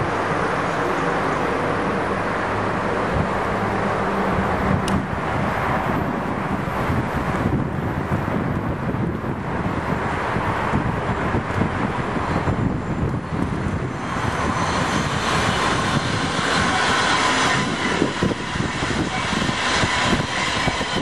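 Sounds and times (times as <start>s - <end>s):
rumble of train wheels on rail: 0.0s - 21.0s
locomotive whine: 10.6s - 21.0s.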